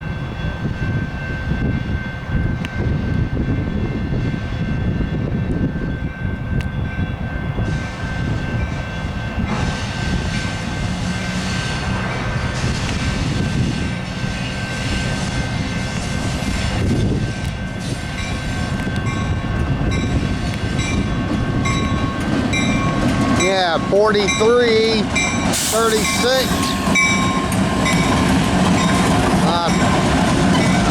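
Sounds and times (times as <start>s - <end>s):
diesel locomotive engines rumbling: 0.0s - 30.9s
railcars rolling: 0.0s - 30.9s
wheels hissing on rail: 7.6s - 18.8s, 25.0s - 30.9s.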